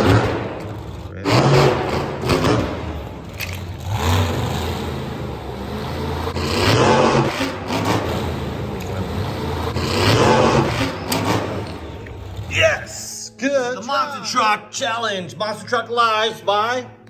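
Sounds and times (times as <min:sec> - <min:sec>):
engine revving: 0:00.0 - 0:12.5.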